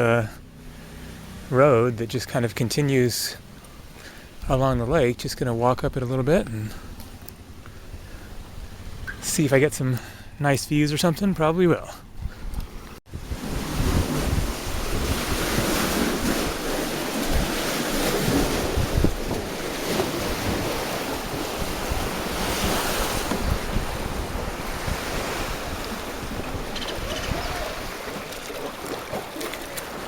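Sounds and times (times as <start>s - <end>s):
wind buffeting microphone: 12.0s - 30.0s.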